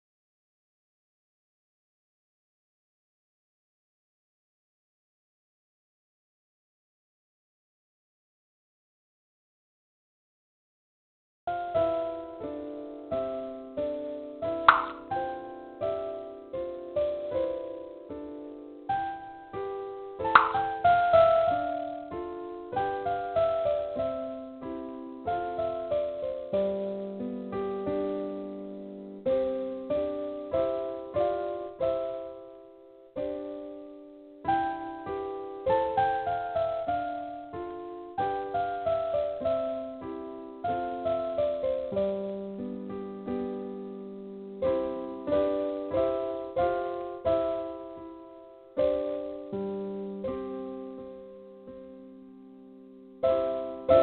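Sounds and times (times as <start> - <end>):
gentle piano chords: 11.5 - 54.0.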